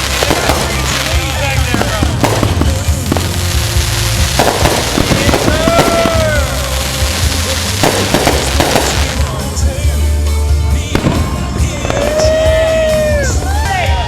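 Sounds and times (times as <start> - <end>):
firework whistle: 0.0 - 9.2
background music with low bass: 0.0 - 14.0
fireworks crackling and popping: 0.0 - 14.0.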